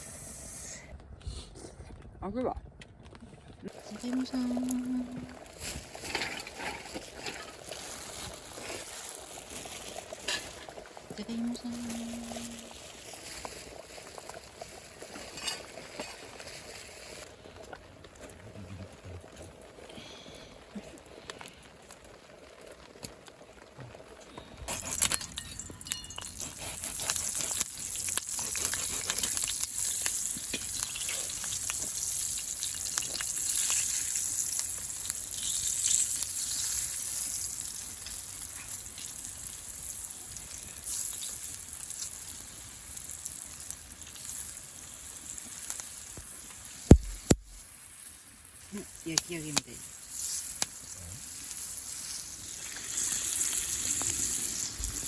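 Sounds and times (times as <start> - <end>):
food sizzling in frying: 3.7 - 17.3, 24.6 - 55.0.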